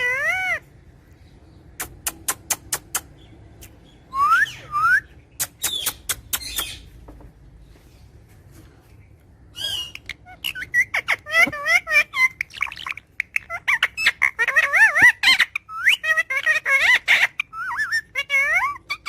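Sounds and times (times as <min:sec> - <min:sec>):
parrot harsh chirps: 0:00.0 - 0:00.7, 0:04.4 - 0:06.9, 0:09.5 - 0:19.0.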